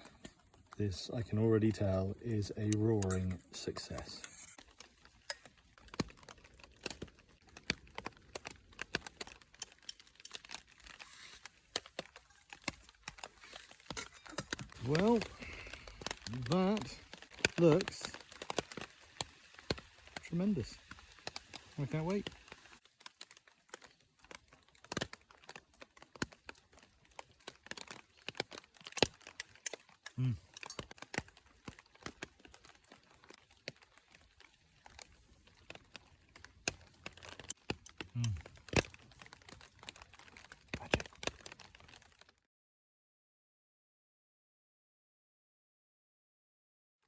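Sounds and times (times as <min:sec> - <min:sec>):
raindrops tapping on shelter: 0:04.6 - 0:42.4.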